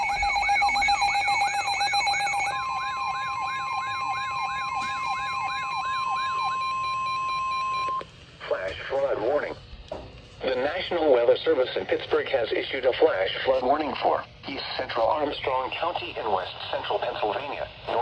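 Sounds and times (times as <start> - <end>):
steady warning alarm tone: 0.0 - 10.9
steady alarm tones: 0.0 - 11.0.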